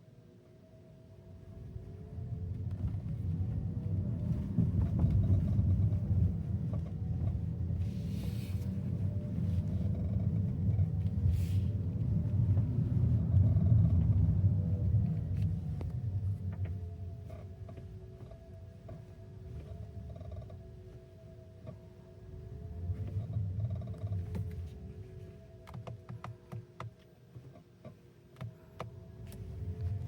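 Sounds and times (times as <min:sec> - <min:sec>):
road and tyre rumble: 0:00.1 - 0:30.0.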